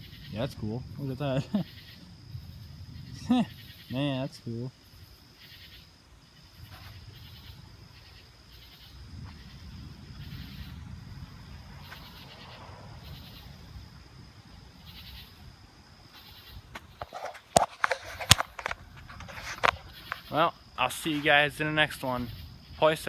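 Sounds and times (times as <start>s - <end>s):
distant thunder rumble: 0.0s - 5.6s, 6.2s - 17.0s
high insect trill: 0.0s - 23.0s
insects chirping: 0.0s - 23.0s.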